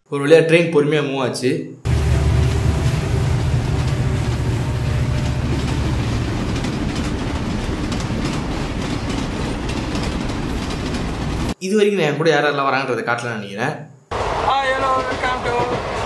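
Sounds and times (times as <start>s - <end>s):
train rumbling on track: 1.9s - 11.6s, 14.1s - 16.0s
wheels clickety-clack: 3.5s - 11.6s, 14.6s - 16.0s.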